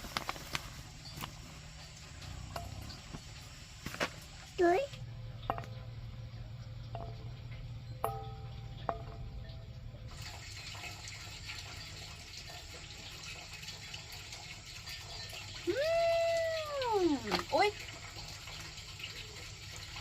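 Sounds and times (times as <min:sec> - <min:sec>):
water running and splashing: 0:00.0 - 0:20.0
short ringing clinks: 0:06.9 - 0:09.8.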